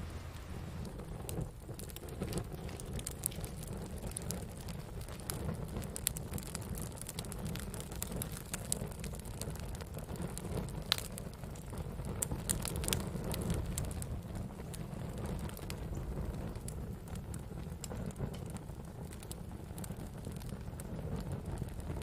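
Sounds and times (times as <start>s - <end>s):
low rush of flame: 0.0s - 22.0s
wood fire crackling and popping: 0.0s - 22.0s.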